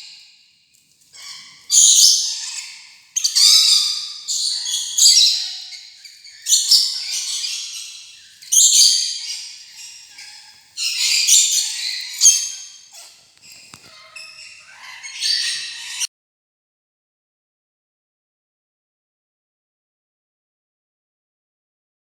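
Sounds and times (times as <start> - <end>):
lorikeets screeching: 0.8 - 16.1.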